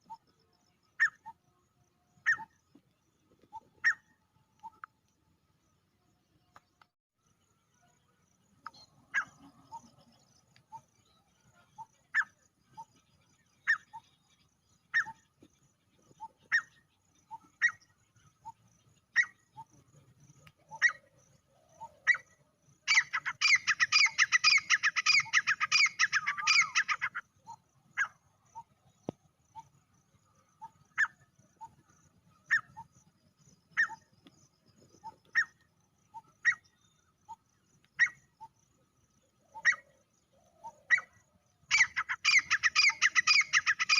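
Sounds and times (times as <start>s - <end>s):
francolin calling: 0.0s - 1.6s, 2.2s - 2.7s, 3.4s - 5.0s, 20.4s - 29.7s, 30.5s - 33.1s, 33.7s - 43.9s.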